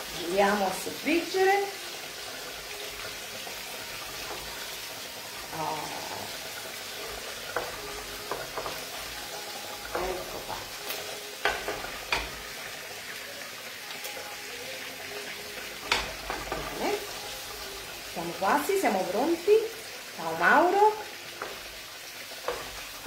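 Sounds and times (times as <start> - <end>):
soffritto sizzling in oil: 0.0 - 23.0.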